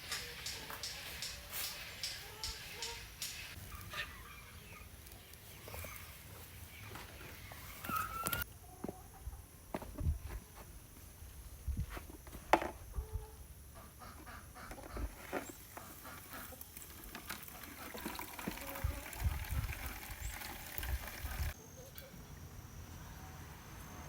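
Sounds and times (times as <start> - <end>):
chickens clucking: 0.0 - 9.5, 12.8 - 21.6.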